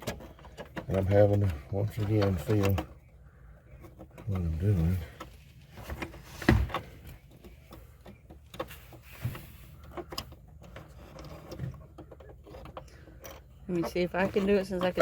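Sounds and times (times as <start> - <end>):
small clicks and knocks of hand work: 5.1 - 15.0.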